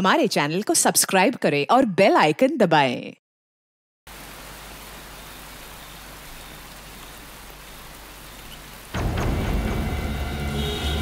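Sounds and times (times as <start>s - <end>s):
heavy rain falling: 4.1s - 11.0s
ominous soundtrack music: 8.9s - 11.0s.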